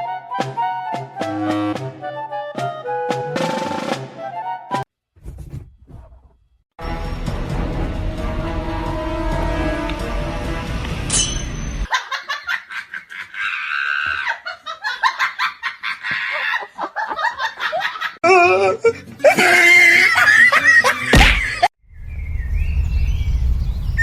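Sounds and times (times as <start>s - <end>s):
person laughing hard: 11.9s - 21.7s
low rumble: 21.9s - 24.0s.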